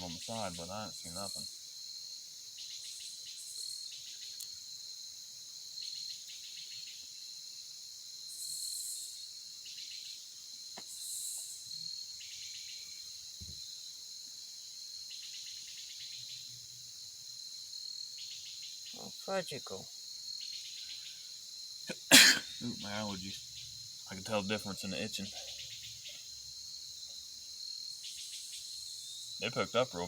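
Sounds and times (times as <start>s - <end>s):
insect high trill: 0.0s - 1.9s, 8.2s - 30.0s
insect chirping bursts: 0.0s - 30.0s.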